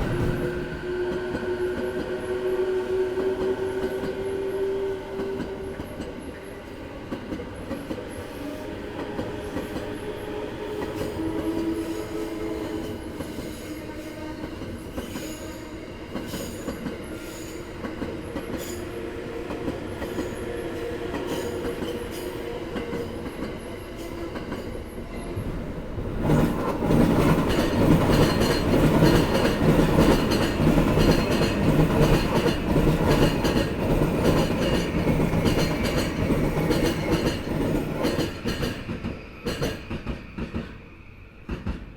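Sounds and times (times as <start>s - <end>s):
electric train running and whining: 0.0s - 41.9s
train wheels clattering over joints: 26.4s - 40.8s.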